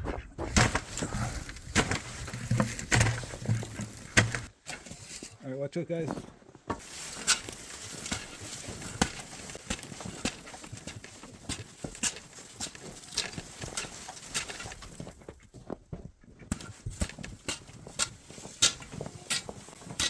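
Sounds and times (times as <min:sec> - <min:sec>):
ice and packed snow breaking: 0:00.5 - 0:04.5, 0:06.8 - 0:15.1.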